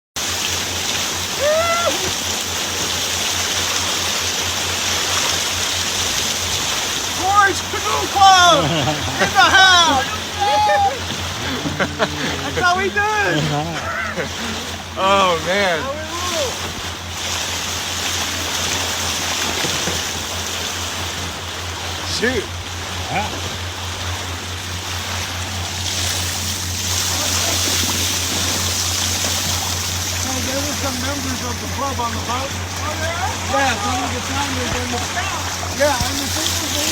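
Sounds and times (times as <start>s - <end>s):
low hum: 0.2s - 36.9s
rushing water and wind: 0.2s - 36.9s
low buffeting: 0.6s - 36.9s
person whooping: 1.3s - 2.2s, 7.2s - 14.6s.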